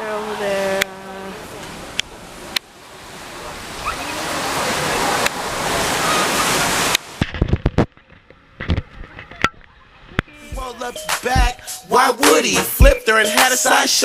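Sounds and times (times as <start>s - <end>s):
rush of wind and water: 0.0s - 10.6s.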